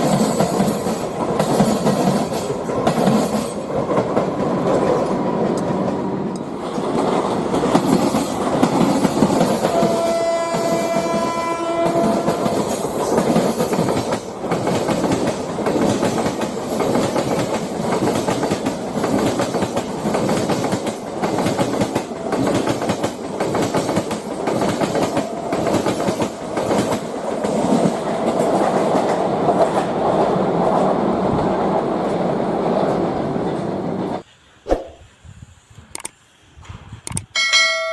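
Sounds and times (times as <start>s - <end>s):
train wheels clattering: 0.0s - 30.0s
train horn: 9.6s - 12.6s.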